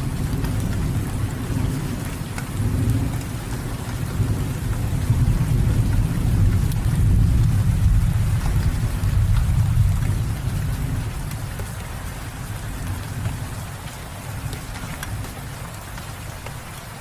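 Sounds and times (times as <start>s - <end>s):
thunder rumbling: 0.0s - 11.8s
rain falling: 0.0s - 17.0s
raindrop ticks: 0.0s - 17.0s.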